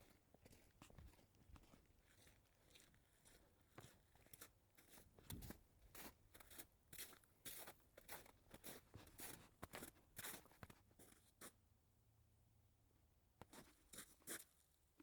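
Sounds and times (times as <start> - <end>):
footsteps crunching in snow: 0.4 - 11.2.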